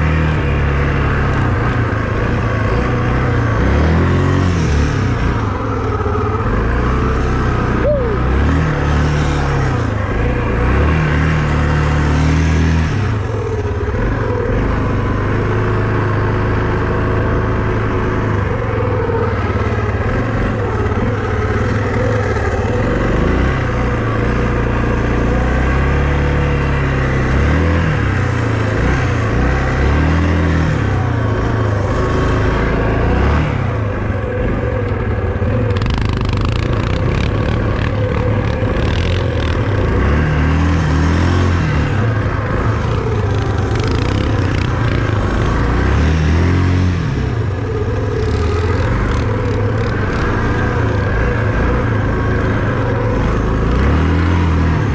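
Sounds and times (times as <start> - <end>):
small engine revving: 0.0 - 54.9.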